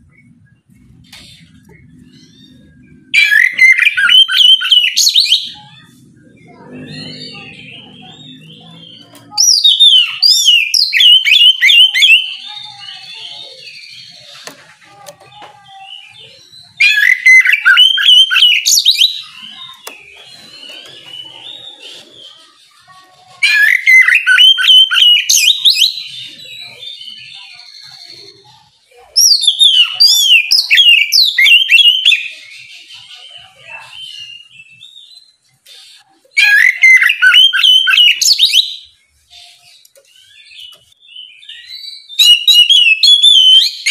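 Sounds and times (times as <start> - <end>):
bird singing whistled notes: 1.6 - 5.7, 15.9 - 22.5, 23.4 - 28.2, 29.2 - 43.9.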